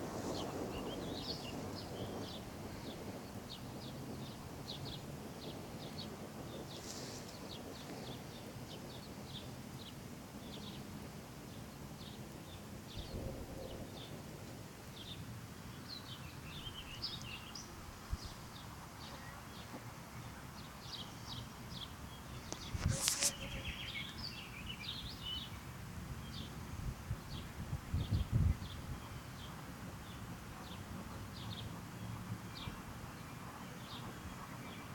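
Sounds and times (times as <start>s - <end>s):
outdoor background noise: 0.0s - 34.9s
small birds chirping: 0.1s - 14.2s, 14.9s - 25.6s, 27.2s - 34.9s.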